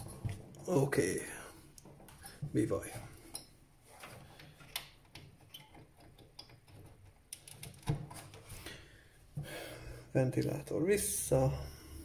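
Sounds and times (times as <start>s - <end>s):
computer parts clicking and tapping: 3.2s - 8.5s.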